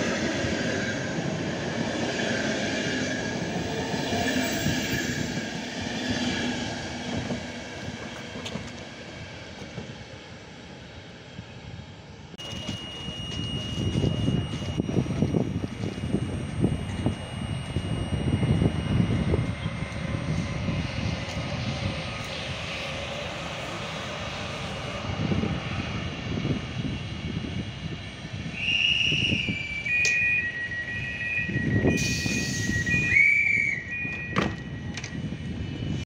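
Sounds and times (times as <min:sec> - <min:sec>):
distant train rumble: 0:00.0 - 0:36.0
wind buffeting microphone: 0:03.1 - 0:10.0, 0:13.2 - 0:29.9, 0:30.8 - 0:36.0
thin high-pitched whine: 0:12.4 - 0:25.0.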